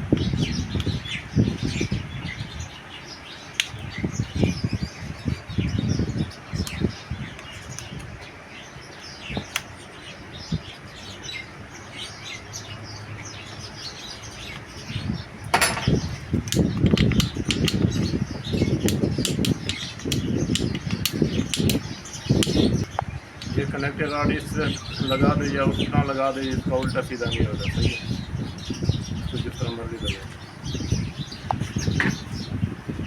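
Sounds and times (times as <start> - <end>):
birds chirping: 0.0 - 33.0
metal parts clicking and knocking: 15.5 - 15.9, 16.5 - 17.9.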